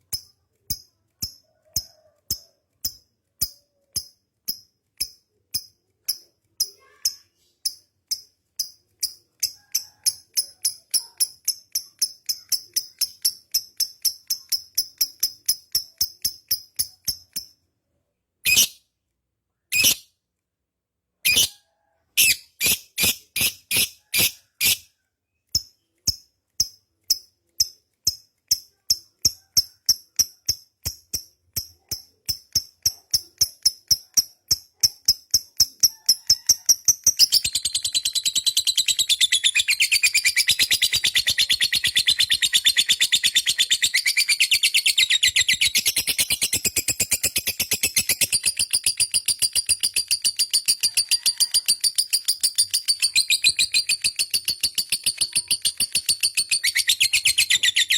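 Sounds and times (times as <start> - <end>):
bird chirping and trilling: 18.5 - 18.8, 19.7 - 20.1, 21.3 - 21.6, 32.9 - 57.9.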